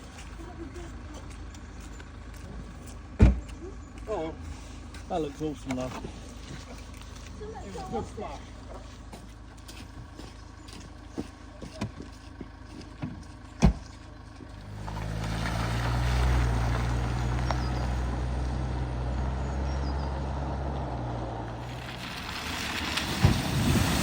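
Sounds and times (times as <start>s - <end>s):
vehicle engine hum: 0.0s - 24.0s
water rushing from wheels: 14.6s - 18.0s, 21.6s - 24.0s.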